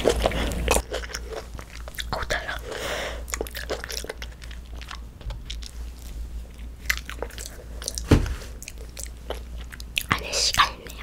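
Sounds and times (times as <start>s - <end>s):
chewing a macaron: 0.0s - 11.0s
low thump: 8.1s - 8.4s.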